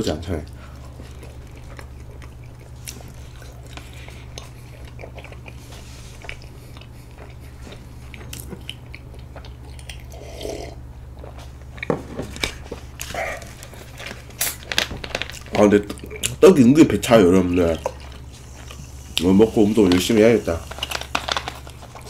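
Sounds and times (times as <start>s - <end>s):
steady low hum: 0.0s - 22.0s
person chewing: 0.6s - 16.4s, 17.1s - 22.0s.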